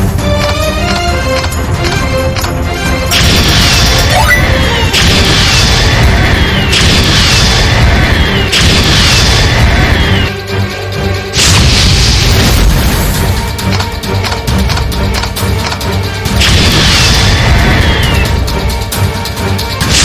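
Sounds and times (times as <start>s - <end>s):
slot game music: 0.0s - 6.0s
electronic effect with falling tone: 4.1s - 4.7s.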